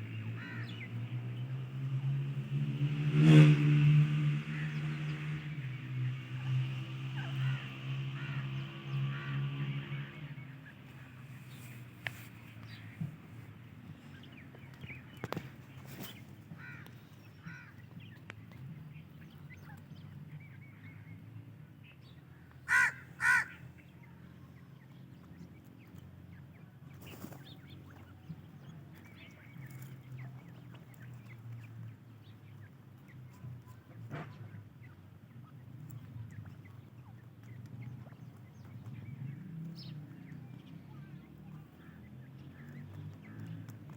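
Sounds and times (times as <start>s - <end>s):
harsh bird calls: 22.5s - 23.9s.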